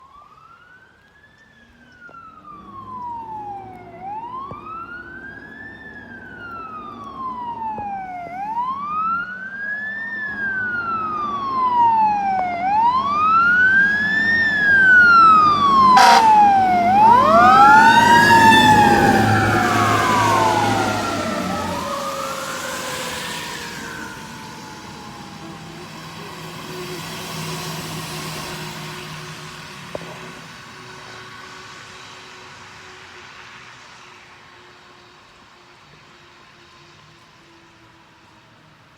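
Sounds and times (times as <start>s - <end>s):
fire truck sirens wailing: 0.0s - 38.9s
engine rumble: 0.4s - 38.9s.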